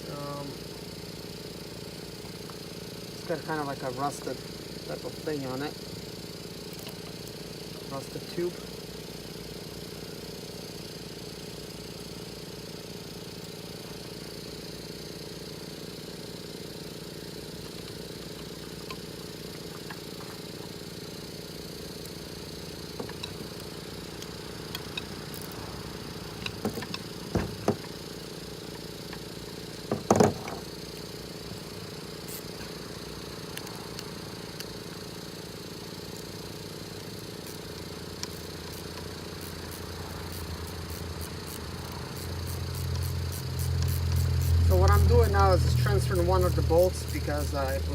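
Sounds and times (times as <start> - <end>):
mechanical hum: 0.0 - 47.9.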